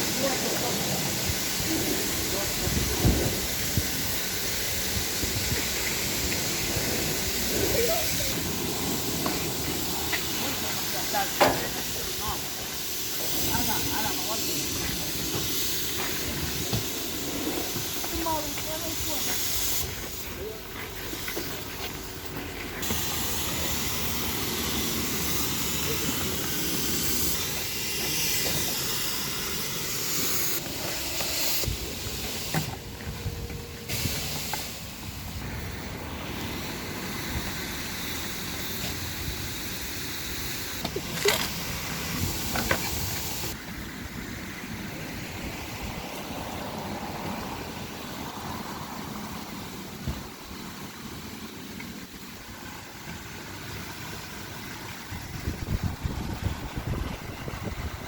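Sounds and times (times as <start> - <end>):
pressure washer spray hissing: 0.0 - 51.6
quiet water rush: 0.0 - 58.0.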